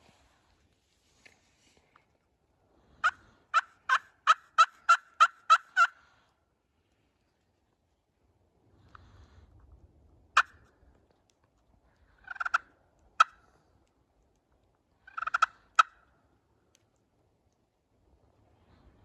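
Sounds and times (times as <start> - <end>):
turkey gobbling: 3.0 - 6.0, 10.4 - 10.7, 12.0 - 13.6, 15.0 - 16.1.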